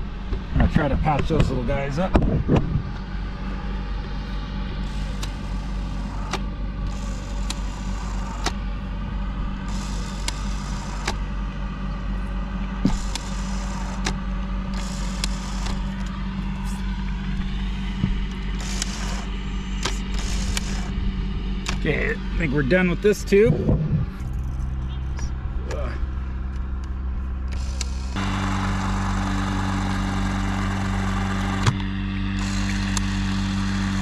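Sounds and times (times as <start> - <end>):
low machine hum: 0.0 - 34.0
sharp clicks: 12.9 - 16.1, 18.3 - 21.0, 21.6 - 21.9, 26.5 - 28.2.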